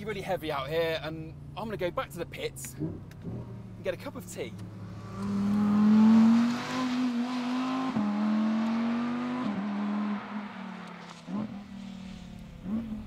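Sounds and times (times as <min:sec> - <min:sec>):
sports car engine accelerating: 0:02.7 - 0:13.0.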